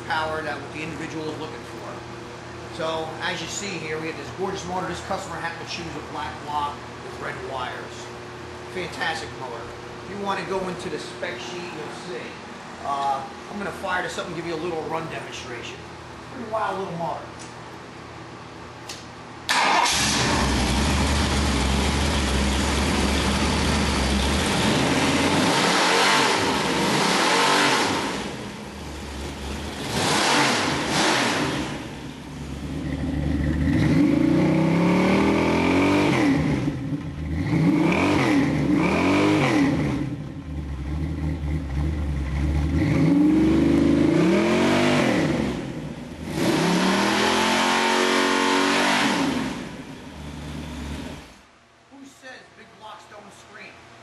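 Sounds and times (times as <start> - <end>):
engine revving: 19.5 - 51.4.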